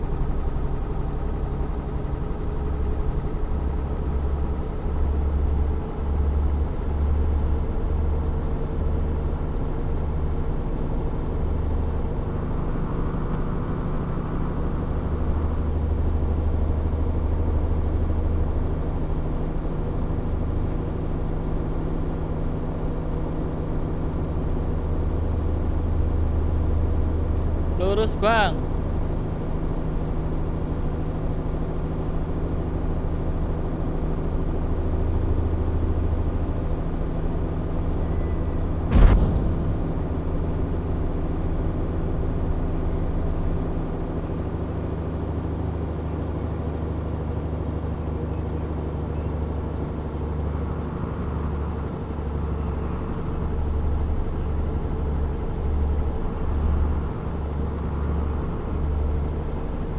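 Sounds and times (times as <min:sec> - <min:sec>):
single sharp knock: 0:38.9 - 0:40.5.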